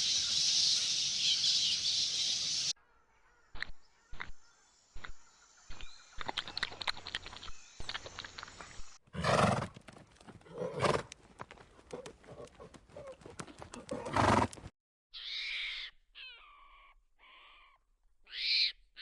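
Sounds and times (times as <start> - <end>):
horse hoof clops: 5.8 - 14.7
horse rough calls: 10.4 - 11.1, 11.9 - 14.6.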